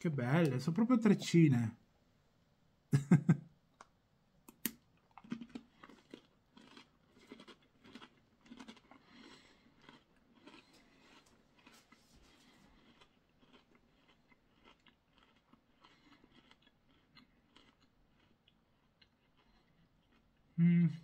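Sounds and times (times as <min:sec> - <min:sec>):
person chewing crunchy crackers: 0:04.5 - 0:20.6.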